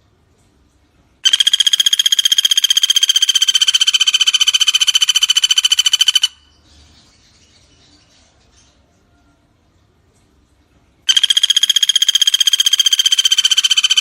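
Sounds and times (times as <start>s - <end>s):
woodpecker rapid rattling call: 1.2s - 6.5s, 11.1s - 14.0s.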